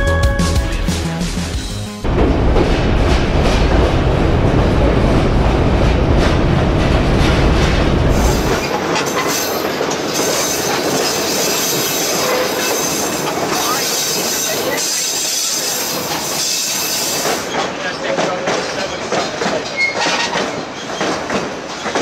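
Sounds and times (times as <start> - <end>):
music: 0.0 - 2.1
train wheels rumbling on track: 1.5 - 22.0.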